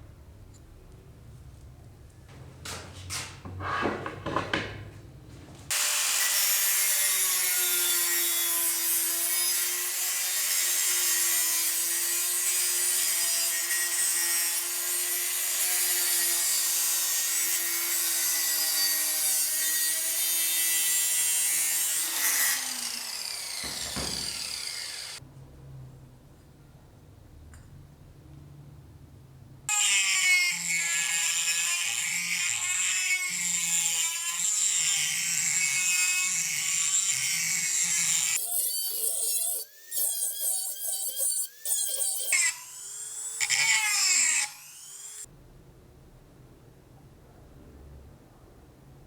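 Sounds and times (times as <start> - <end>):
power tool humming and hissing: 22.0 - 25.2
power tool winding down whine: 22.1 - 25.2.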